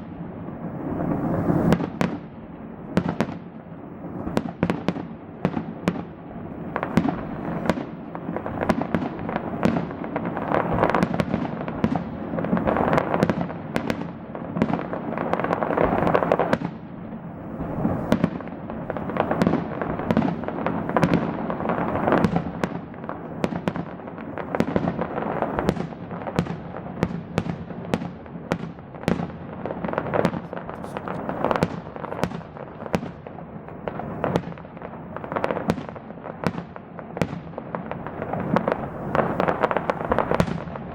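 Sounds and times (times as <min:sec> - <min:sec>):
dense fireworks crackling: 0:00.0 - 0:40.9
fireworks shells bursting: 0:30.2 - 0:33.2.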